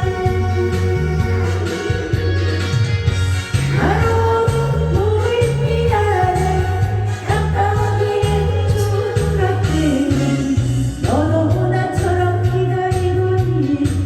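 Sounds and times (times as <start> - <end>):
backing track with bass line: 0.0 - 14.0
person singing: 0.0 - 14.0.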